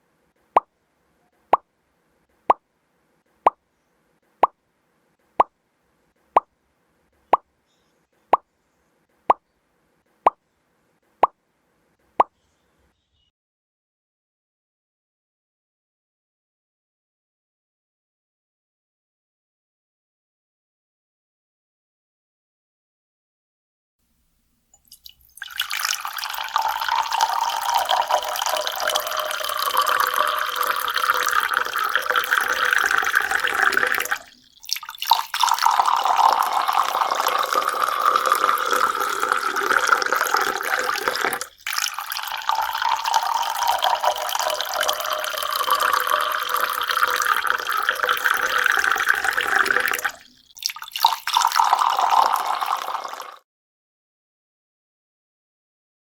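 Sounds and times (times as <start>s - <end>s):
water running: 24.8s - 53.4s.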